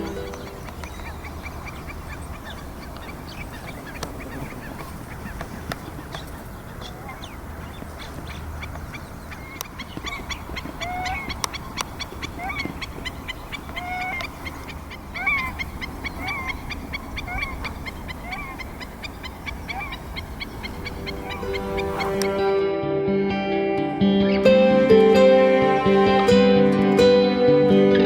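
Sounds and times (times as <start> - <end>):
geese honking: 0.0 - 28.0
stilts sharp bickering calls: 1.5 - 22.6.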